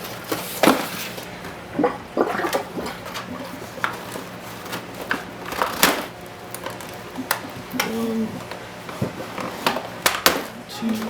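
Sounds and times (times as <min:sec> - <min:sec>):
packaging crackling and snapping: 0:04.6 - 0:08.6.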